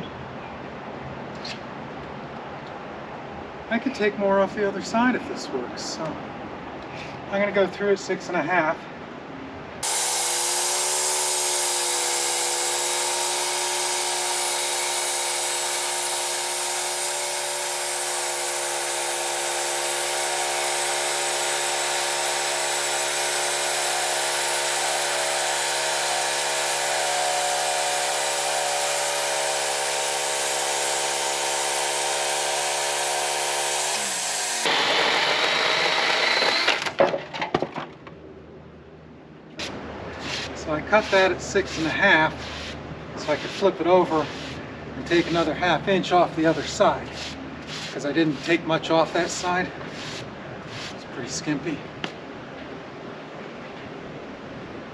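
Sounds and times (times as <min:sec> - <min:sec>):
band saw cutting log: 0:09.8 - 0:37.0, 0:39.6 - 0:51.0.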